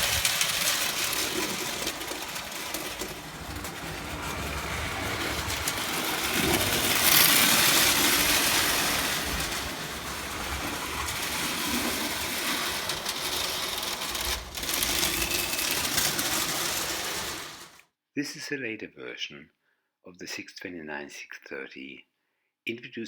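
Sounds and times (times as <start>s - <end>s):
toy train motor whirring: 0.0s - 17.8s.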